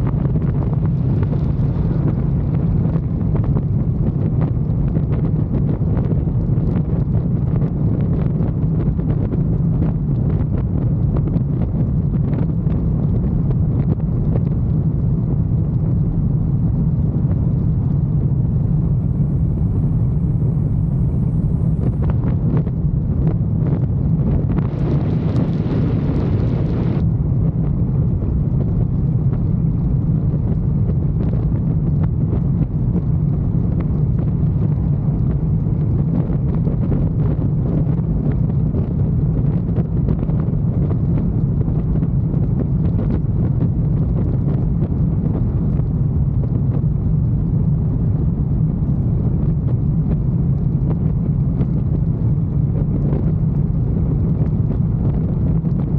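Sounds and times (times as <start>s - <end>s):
wind noise on microphone: 0.0s - 55.9s.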